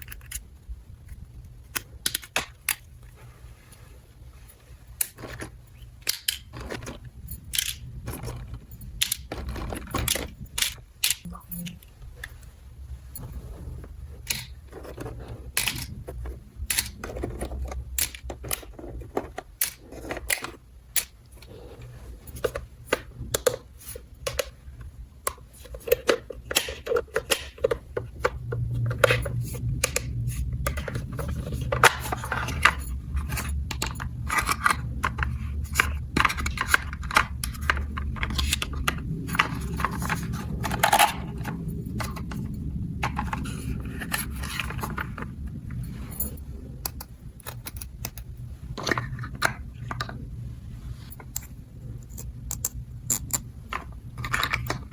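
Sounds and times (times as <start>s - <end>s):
low steady hum: 0.0s - 54.9s
plastic toy pieces clicking: 7.5s - 8.0s, 9.0s - 11.8s, 16.6s - 21.2s.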